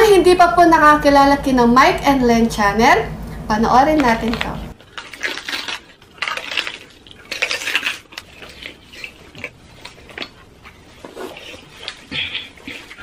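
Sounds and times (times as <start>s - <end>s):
close-miked biting and chewing: 4.8s - 13.0s.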